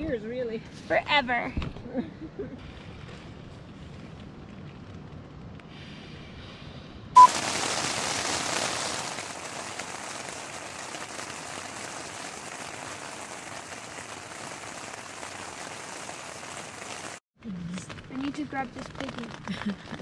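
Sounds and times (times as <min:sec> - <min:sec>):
short loud beep: 0:07.2 - 0:07.4
rain pattering on tent fabric: 0:07.2 - 0:20.0.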